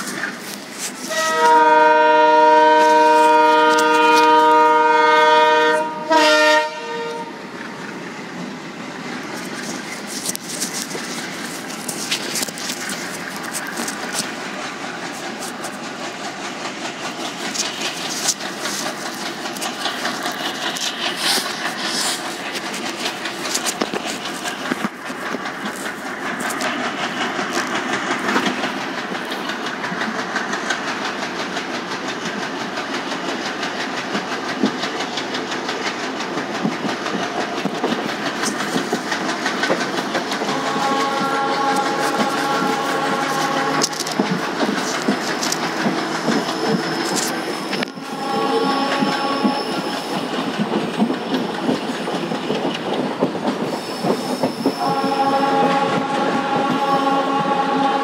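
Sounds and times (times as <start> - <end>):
train wheels clattering over rails: 0.0 - 58.0
steady tones: 40.1 - 50.8, 54.7 - 58.0.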